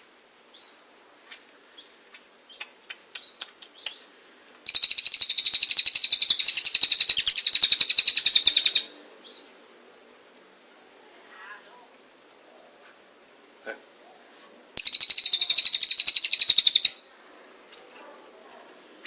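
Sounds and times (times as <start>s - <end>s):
songbird chirping: 0.0s - 11.2s, 11.8s - 18.9s
rapid bird trill: 4.7s - 9.5s, 14.8s - 17.1s.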